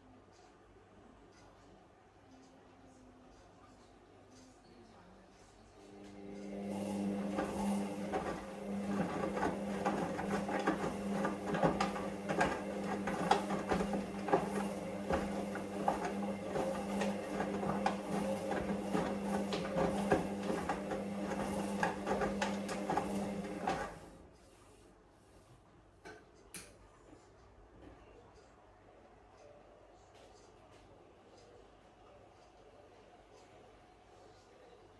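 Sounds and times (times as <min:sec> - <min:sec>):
washing machine motor hum: 0:05.9 - 0:24.3.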